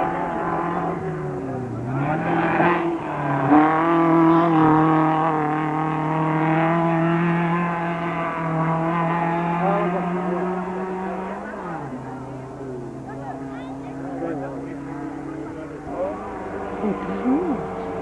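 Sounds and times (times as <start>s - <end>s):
race car engine revving: 0.0s - 18.0s.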